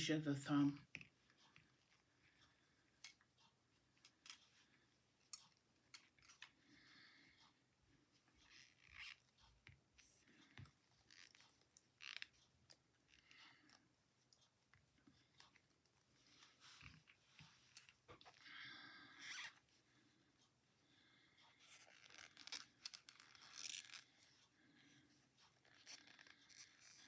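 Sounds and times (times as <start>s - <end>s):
knitting needles clicking: 5.2s - 6.6s.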